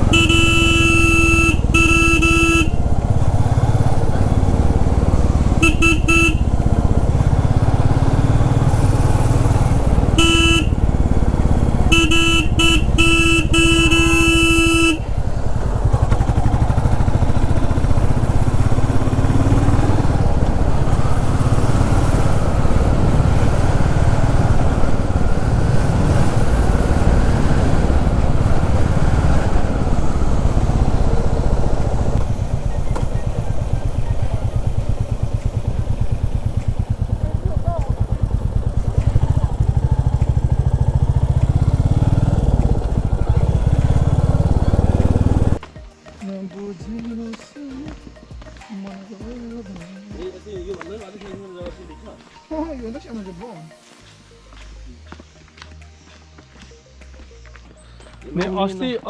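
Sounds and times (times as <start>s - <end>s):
horn honking: 0.0s - 45.6s
motorcycle engine running: 0.0s - 52.4s.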